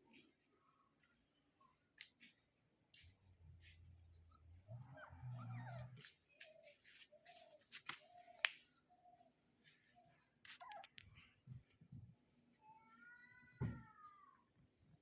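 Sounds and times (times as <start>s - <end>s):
faint animal whine: 3.8s - 6.8s
animal squeaks: 4.3s - 6.1s.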